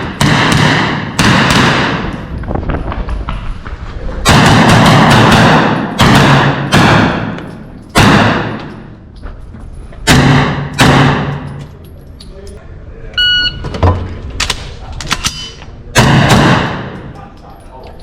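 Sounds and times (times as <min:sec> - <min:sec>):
pistol shots echoing: 0:00.0 - 0:02.3, 0:04.2 - 0:08.9, 0:10.0 - 0:11.6, 0:15.9 - 0:17.1.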